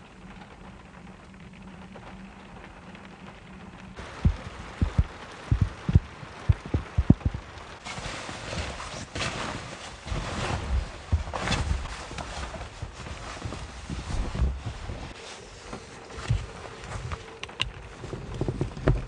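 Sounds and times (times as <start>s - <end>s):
low heavy thumps: 4.0s - 7.5s
wind gusting against microphone: 4.0s - 7.8s.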